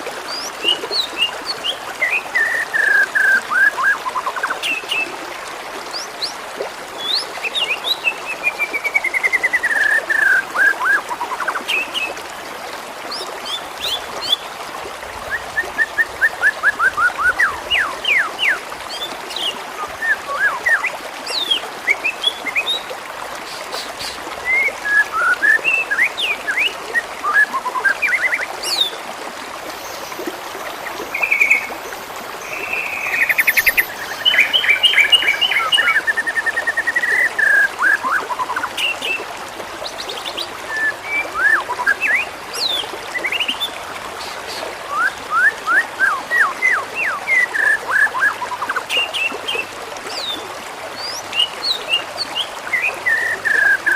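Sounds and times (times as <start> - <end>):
birds chirping: 29.7 - 36.1
bird trills: 32.4 - 35.9.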